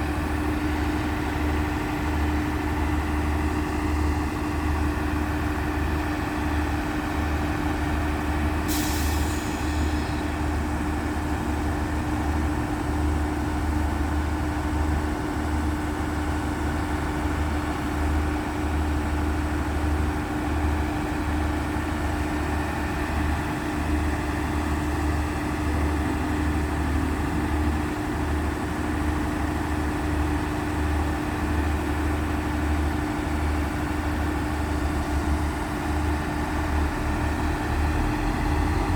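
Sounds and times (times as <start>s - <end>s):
diesel train engine rumbling: 0.0s - 38.9s
hiss of air: 8.7s - 10.3s.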